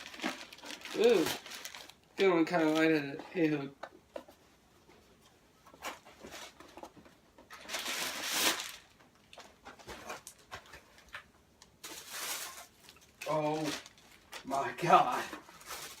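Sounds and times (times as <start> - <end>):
paper and cardboard rustling: 5.7 - 11.2, 11.8 - 16.0.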